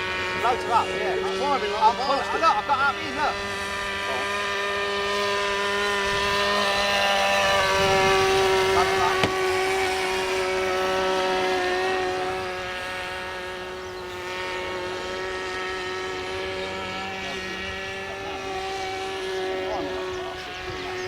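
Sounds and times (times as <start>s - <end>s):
model aircraft engine buzzing: 0.0s - 21.0s.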